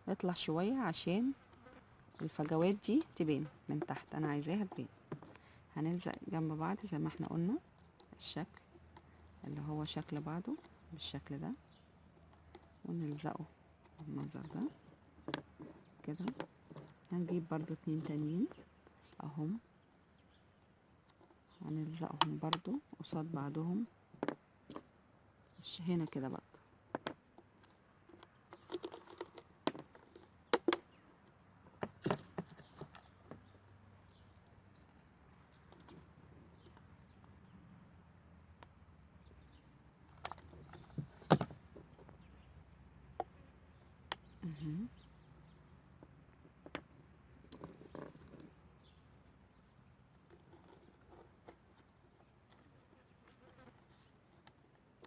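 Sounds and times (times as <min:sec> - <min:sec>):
seashells clicking on a bottle: 0:26.9 - 0:33.5.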